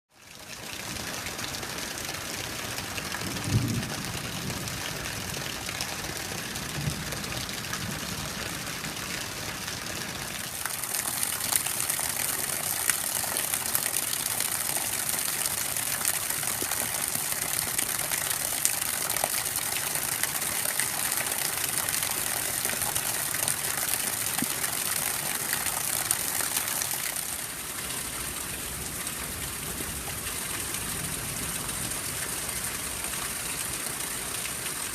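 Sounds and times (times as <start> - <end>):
steady rain drops ticking: 0.2 - 34.9.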